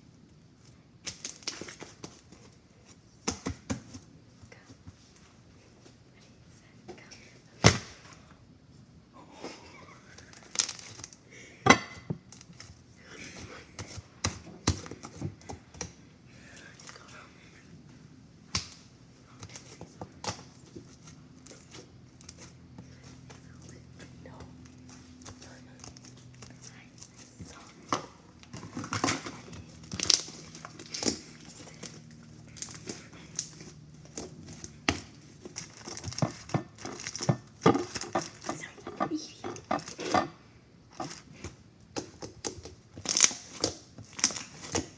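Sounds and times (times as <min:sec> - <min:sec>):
slime squishing and crackling: 0:24.7 - 0:40.1, 0:42.0 - 0:44.9.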